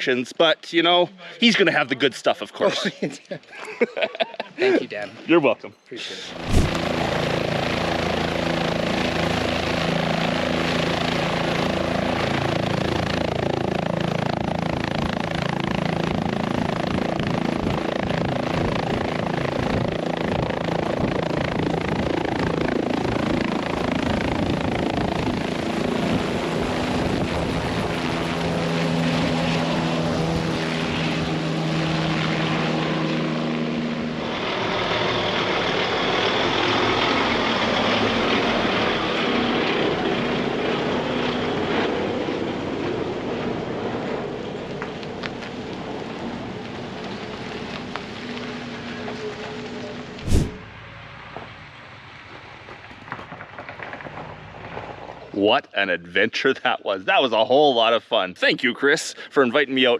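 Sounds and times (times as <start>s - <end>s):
helicopter rotor and engine: 6.4s - 47.4s.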